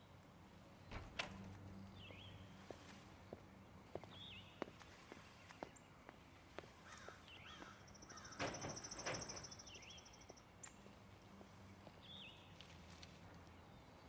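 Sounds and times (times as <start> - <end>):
bird chirping: 1.7 - 12.7.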